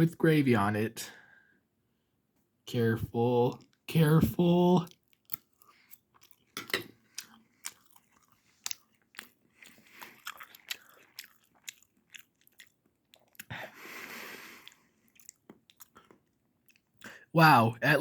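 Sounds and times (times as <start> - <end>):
child chewing wet clicks: 4.8 - 17.3.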